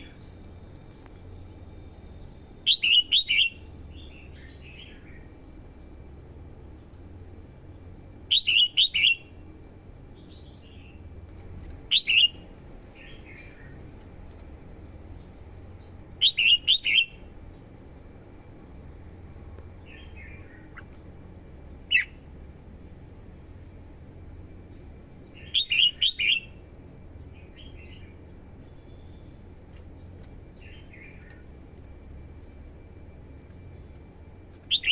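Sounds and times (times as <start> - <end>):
bird whistled song: 0.0 - 5.3, 8.3 - 9.4, 11.9 - 13.8, 16.2 - 17.3, 19.8 - 20.9, 21.9 - 22.2, 25.2 - 26.6, 27.3 - 29.3, 34.6 - 34.9
low steady hum: 0.0 - 34.9.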